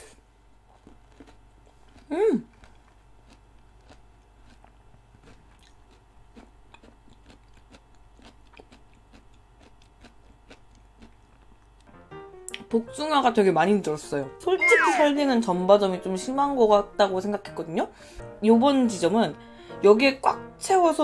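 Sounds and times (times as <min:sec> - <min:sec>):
crunchy chewing: 0:00.6 - 0:11.9.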